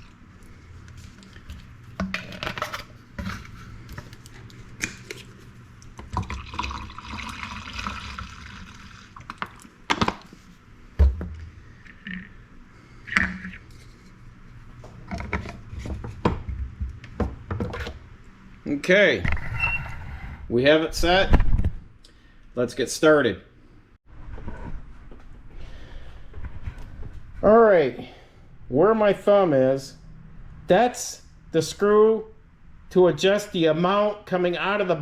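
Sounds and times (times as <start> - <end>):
water poured into plastic cup: 6.2 - 9.7.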